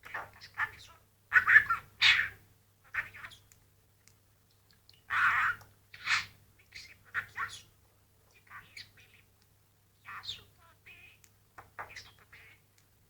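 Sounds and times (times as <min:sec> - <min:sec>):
budgerigar chattering: 0:00.1 - 0:03.4, 0:05.1 - 0:07.7, 0:10.0 - 0:12.7.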